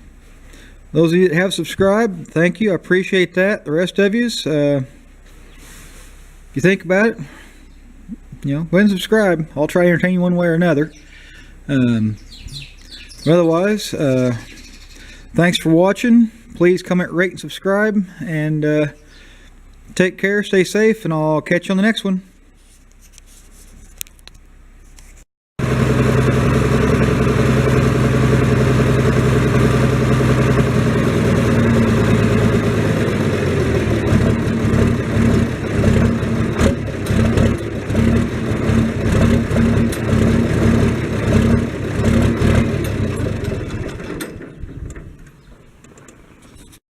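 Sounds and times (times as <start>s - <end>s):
small tractor engine running: 25.6s - 46.4s.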